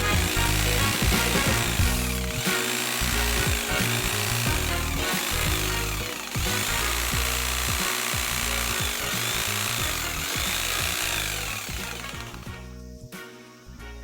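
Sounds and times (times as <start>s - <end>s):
hedge trimmer cutting: 0.0s - 12.6s.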